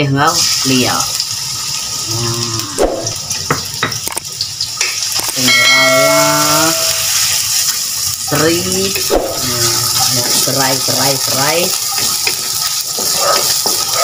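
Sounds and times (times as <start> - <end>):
garlic sizzling in hot oil: 0.0 - 14.0
ringing pitched sound: 5.4 - 7.2.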